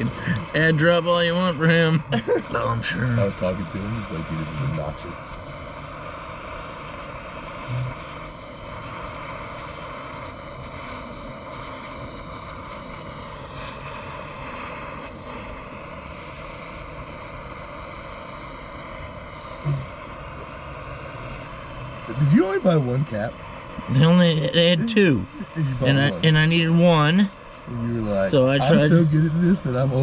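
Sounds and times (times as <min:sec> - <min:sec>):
torch flame hissing: 0:00.0 - 0:30.0.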